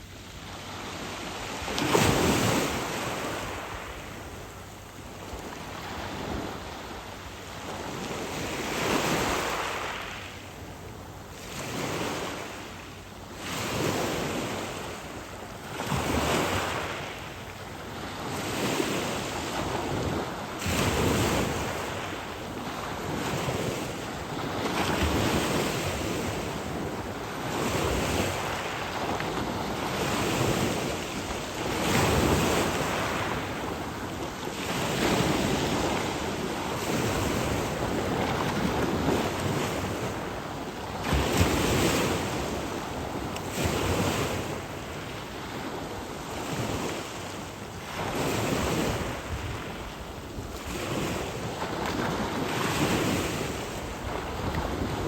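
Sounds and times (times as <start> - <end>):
small waves at shoreline: 0.0 - 55.0
wind buffeting microphone: 47.9 - 55.0.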